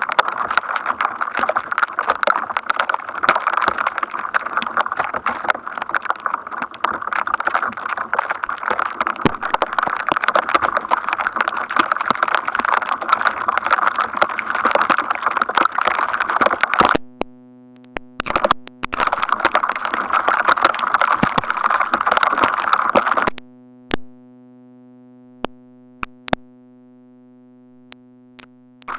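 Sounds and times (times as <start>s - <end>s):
crackling static: 0.0s - 28.9s
steady low tone: 23.4s - 28.9s.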